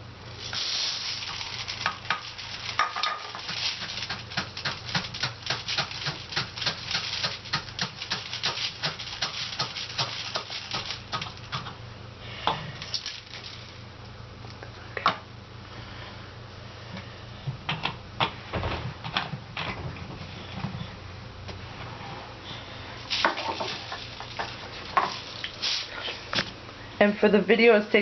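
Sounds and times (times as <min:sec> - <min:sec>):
rice rattling into plastic bottle: 0:00.4 - 0:11.8, 0:12.8 - 0:13.8, 0:23.1 - 0:26.5.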